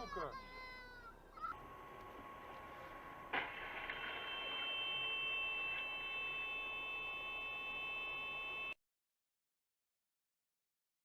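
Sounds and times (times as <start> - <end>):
faint steady tone: 0.0 - 8.8
high electronic tone: 1.6 - 8.8.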